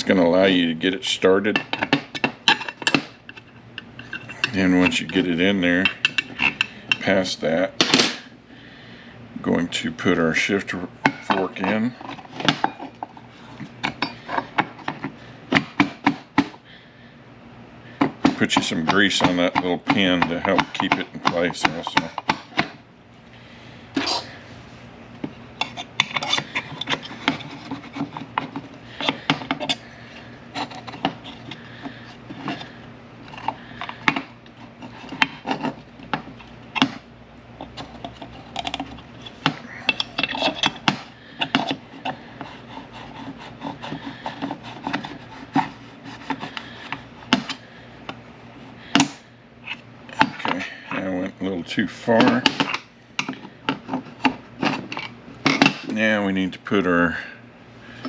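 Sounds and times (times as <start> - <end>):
metal parts clicking and knocking: 1.5 - 7.2, 25.6 - 29.8, 37.6 - 42.2, 52.2 - 56.0.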